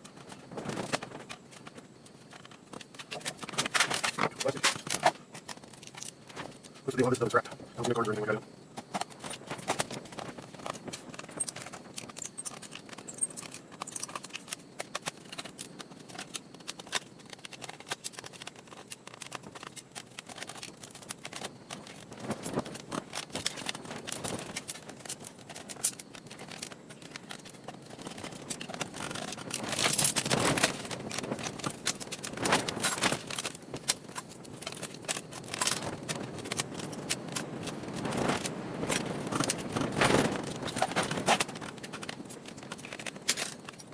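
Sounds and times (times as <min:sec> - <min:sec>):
scraping and rustling: 0:00.0 - 0:43.9
laptop parts clicking and tapping: 0:08.8 - 0:43.9.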